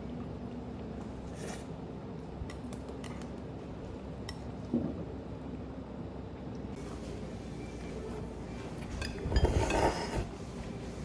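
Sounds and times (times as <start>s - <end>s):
restaurant background hum: 0.0s - 11.0s
utensils clinking against dishes: 8.8s - 10.3s.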